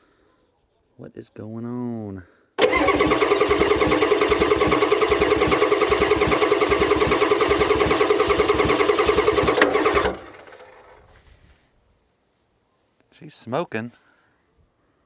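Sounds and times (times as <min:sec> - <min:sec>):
diesel engine starter cranking: 0:02.6 - 0:11.2.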